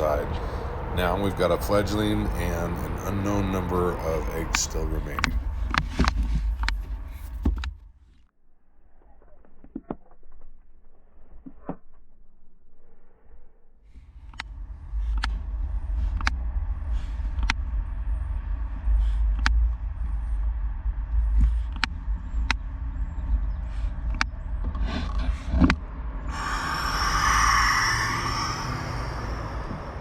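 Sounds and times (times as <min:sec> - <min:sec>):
owl hissing: 0:00.0 - 0:01.3, 0:26.3 - 0:30.0
low rumble: 0:00.0 - 0:07.4, 0:12.1 - 0:30.0.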